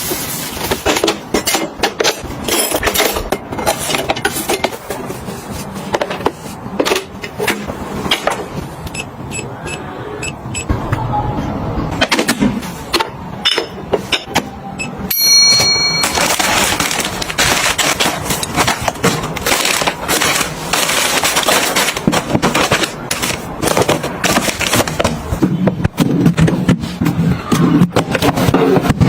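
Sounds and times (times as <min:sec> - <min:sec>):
kitchen items clicking and knocking: 0:00.0 - 0:08.5, 0:15.4 - 0:29.0
high-pitched tone: 0:14.7 - 0:16.8
dense rustling and crackling: 0:16.1 - 0:27.1.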